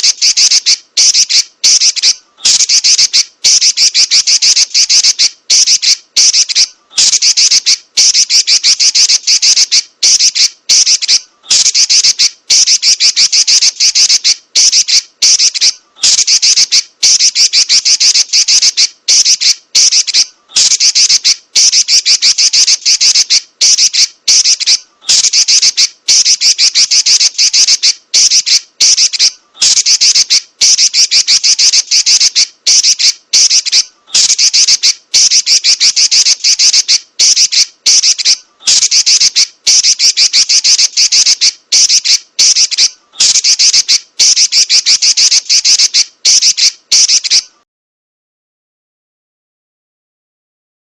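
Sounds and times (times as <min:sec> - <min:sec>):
bird chattering trill: 0:00.0 - 0:47.6.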